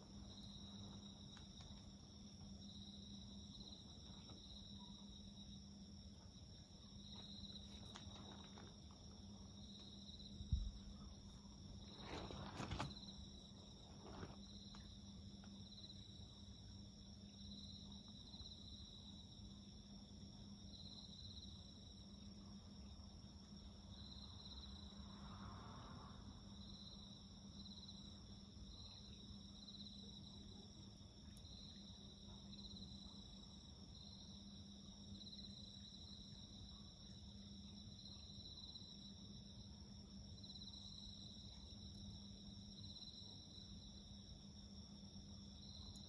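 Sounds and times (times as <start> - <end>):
wood fire crackling: 0.0 - 4.9, 6.8 - 16.6
insects trilling: 0.0 - 46.0.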